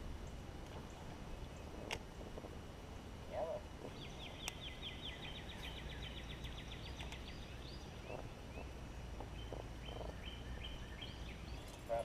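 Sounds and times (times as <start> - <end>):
outdoor background rumble: 0.0 - 12.0
songbird trilling and chirping: 3.8 - 12.0.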